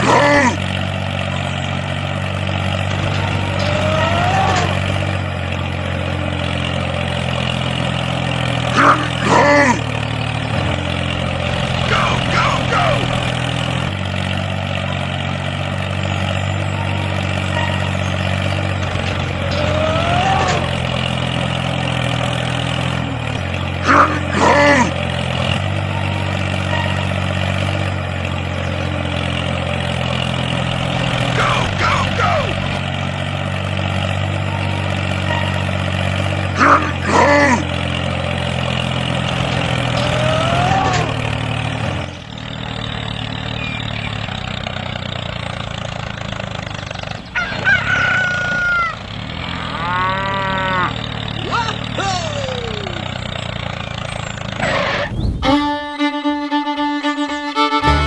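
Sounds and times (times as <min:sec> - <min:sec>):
low engine drone: 0:00.0 - 0:58.0
short swooping tones: 0:54.6 - 0:56.2.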